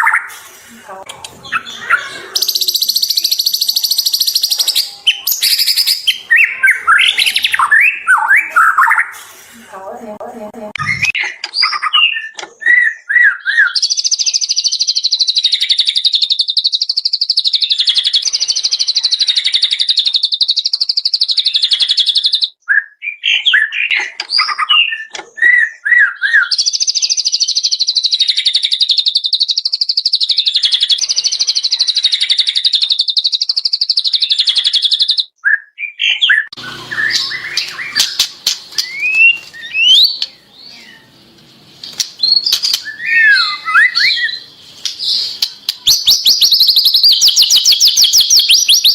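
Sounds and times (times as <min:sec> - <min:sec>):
bird whistled phrases and trills: 0:01.2 - 0:09.2, 0:10.8 - 0:41.1, 0:41.9 - 0:48.9
bird clicks and varied calls: 0:36.5 - 0:48.9.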